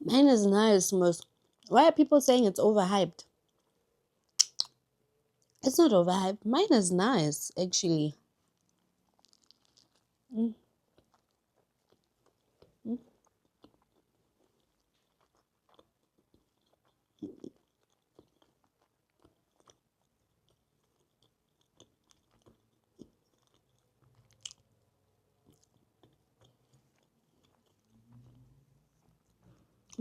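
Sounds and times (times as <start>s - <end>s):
person chewing food: 1.2s - 1.7s, 3.4s - 4.8s, 8.4s - 30.0s.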